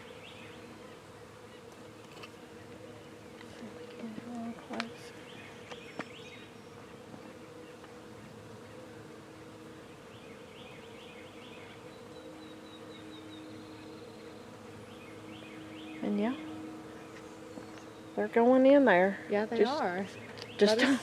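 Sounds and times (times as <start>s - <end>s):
bee swarm buzzing: 0.0s - 21.0s.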